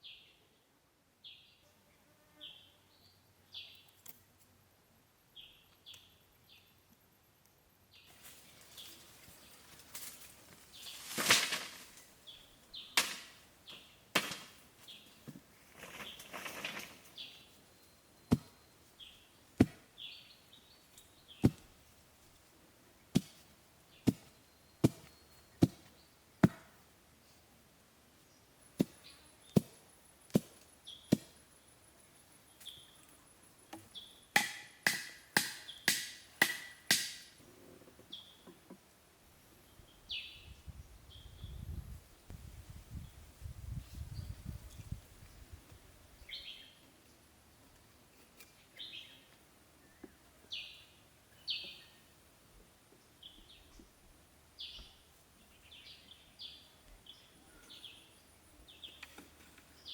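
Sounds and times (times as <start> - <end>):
chopping strikes on wood: 13.0 - 13.3, 14.2 - 14.6, 18.3 - 18.5, 19.6 - 19.8, 21.4 - 21.7, 23.1 - 23.4, 24.0 - 26.8, 29.6 - 31.3, 34.3 - 37.4.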